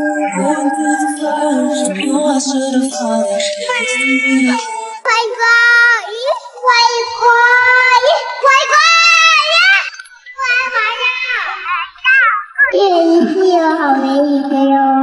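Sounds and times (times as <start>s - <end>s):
lower voice or music: 0.0s - 5.2s
young child singing: 0.0s - 15.0s.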